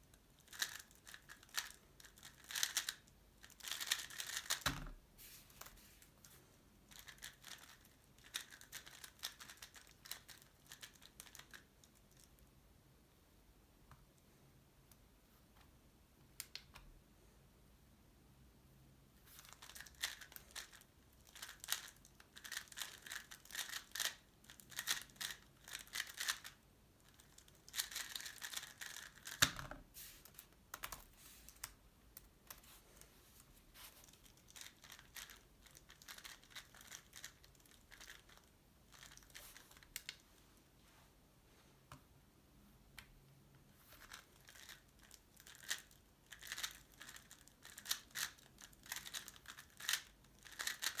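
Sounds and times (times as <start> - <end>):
plastic puzzle cube clacking: 0.4 - 4.9, 6.9 - 11.7, 19.4 - 29.6, 34.2 - 40.2, 44.0 - 51.0.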